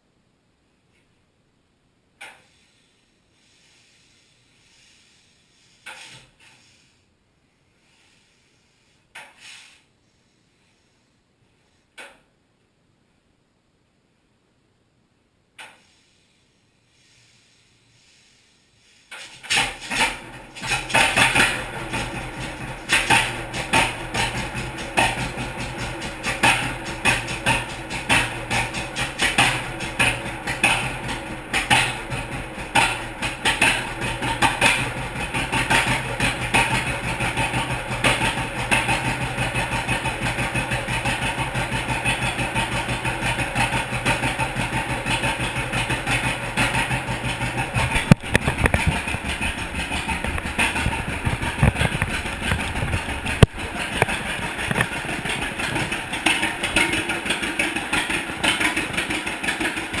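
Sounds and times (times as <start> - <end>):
tractor engine popping exhaust: 19.3 - 60.0.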